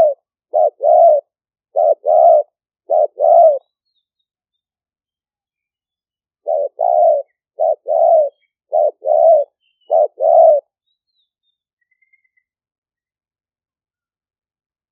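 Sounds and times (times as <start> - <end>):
dove cooing: 0.0 - 3.7, 6.4 - 10.7.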